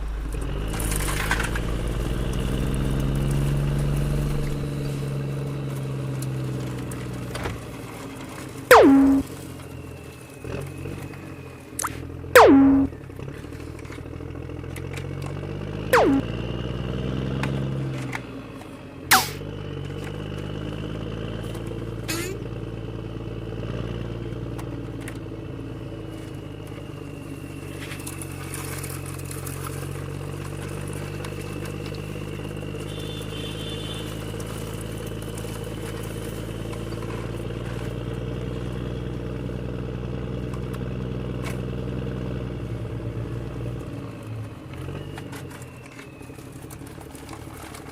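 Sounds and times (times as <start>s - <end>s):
fast downward swoops: 8.7s - 9.2s, 11.8s - 12.9s, 16.0s - 16.3s.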